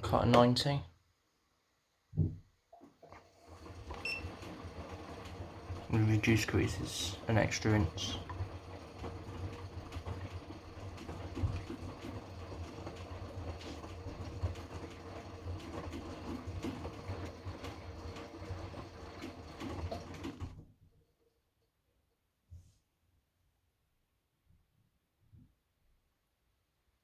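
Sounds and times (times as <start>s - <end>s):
washing machine motor hum: 2.2s - 20.9s
drum tumbling load: 3.0s - 20.6s
clunks and knocks: 8.2s - 17.8s.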